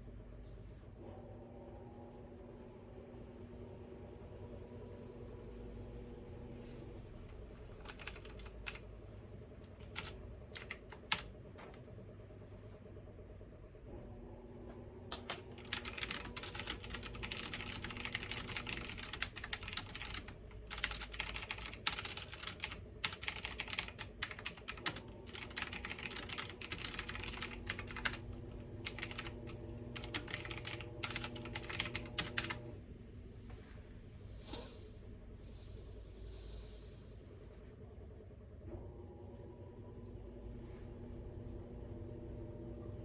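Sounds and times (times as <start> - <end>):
washing machine humming: 0.0 - 43.0
fast typing on keyboard: 7.8 - 8.8, 9.7 - 11.3, 15.1 - 32.6.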